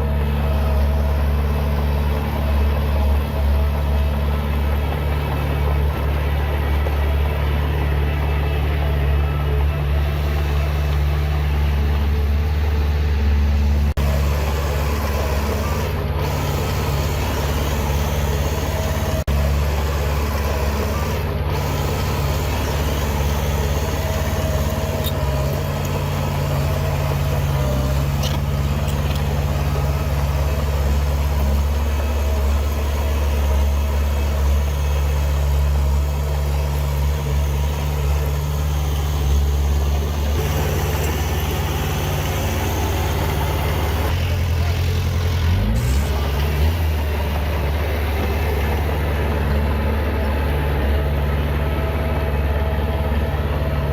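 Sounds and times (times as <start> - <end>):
heavy diesel engine running: 0.0 - 53.9.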